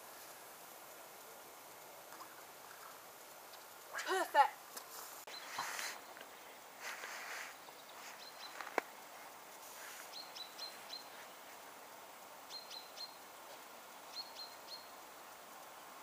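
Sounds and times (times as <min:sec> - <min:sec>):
faint background hiss: 0:00.0 - 0:16.0
small bird chirping: 0:05.2 - 0:11.6, 0:12.4 - 0:15.4.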